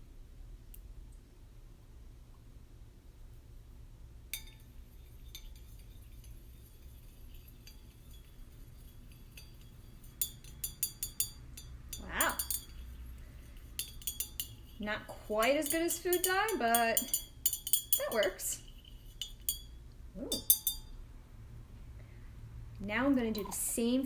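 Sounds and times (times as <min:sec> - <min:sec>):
clinks against a drinking glass: 0:04.4 - 0:04.7, 0:09.0 - 0:13.0, 0:13.8 - 0:14.8, 0:15.6 - 0:18.4, 0:20.3 - 0:20.9.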